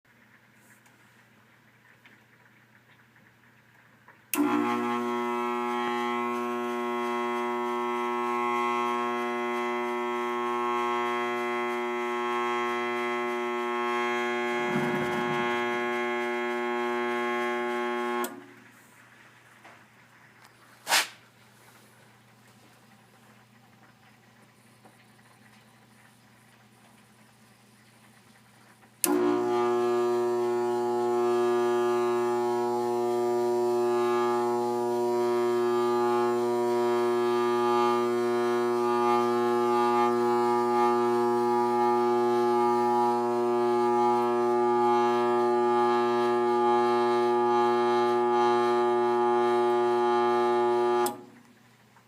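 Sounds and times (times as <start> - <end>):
furnace motor buzzing: 4.3 - 18.8, 28.9 - 51.5.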